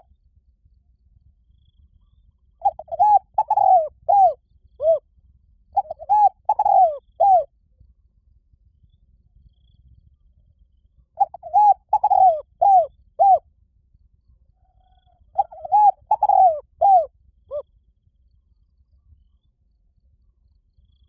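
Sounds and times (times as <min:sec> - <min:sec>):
dove cooing: 0:02.6 - 0:05.0, 0:05.8 - 0:07.5, 0:11.2 - 0:13.4, 0:14.8 - 0:17.6.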